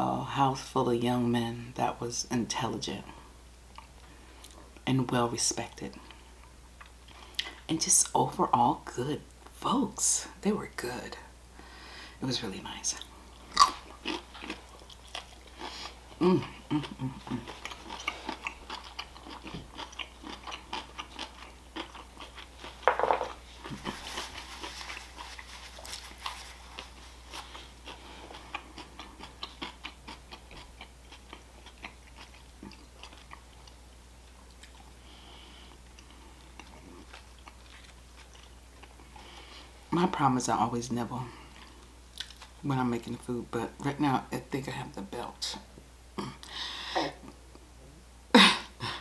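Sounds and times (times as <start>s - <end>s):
person biting and chewing: 13.5s - 33.8s
napkin paper rustle: 23.7s - 27.5s.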